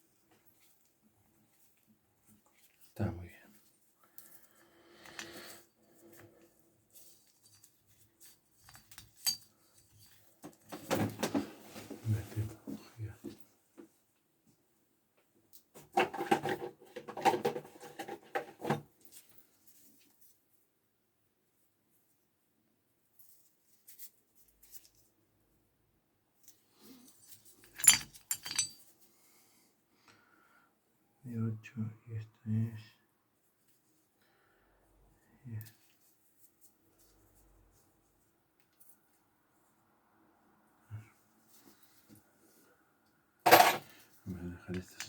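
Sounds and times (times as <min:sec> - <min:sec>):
metal tools clinking: 0:07.3 - 0:10.2, 0:27.1 - 0:28.9, 0:43.5 - 0:43.9.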